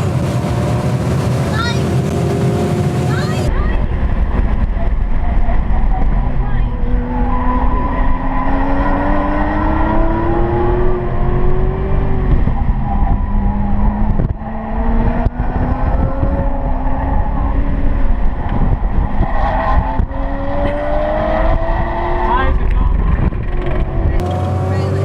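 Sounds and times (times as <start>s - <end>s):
car engine accelerating hard: 0.0s - 25.0s
road and tyre rumble: 0.0s - 25.0s.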